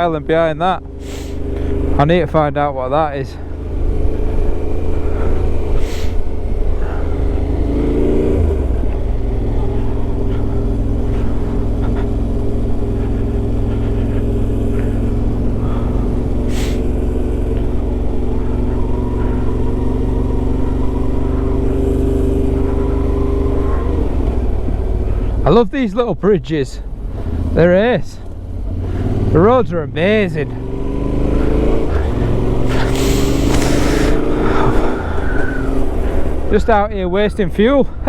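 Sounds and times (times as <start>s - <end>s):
motorcycle engine cruising: 0.0s - 38.0s
road and wind rumble: 0.0s - 38.0s.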